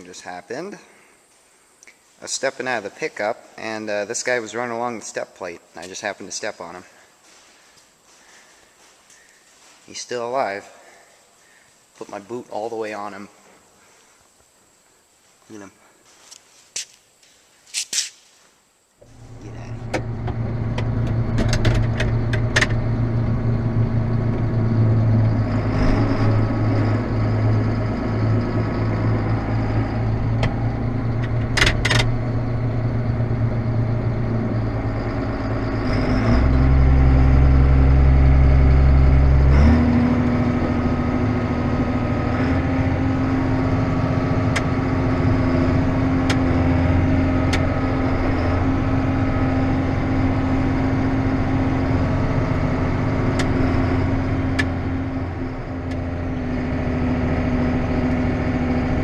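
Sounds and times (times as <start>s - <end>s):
constant high whine: 0.0s - 59.0s
vehicle engine running: 19.1s - 59.0s.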